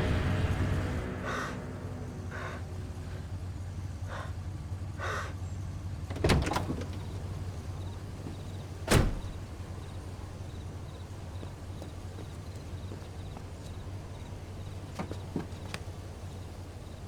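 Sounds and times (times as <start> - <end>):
low steady hum: 0.0 - 17.0
soft muffled thuds: 6.1 - 17.0.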